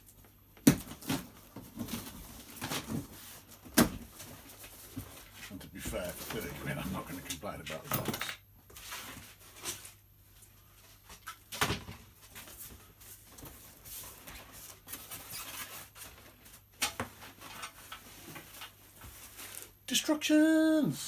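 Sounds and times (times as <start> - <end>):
cardboard packaging rustling: 0.0 - 19.8.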